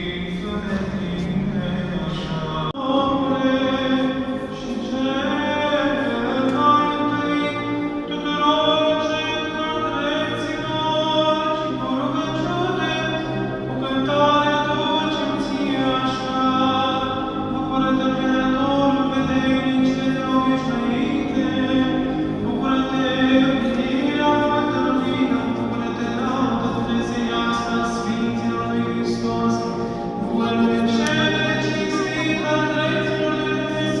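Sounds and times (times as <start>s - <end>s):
choir singing liturgical chant: 0.0s - 34.0s.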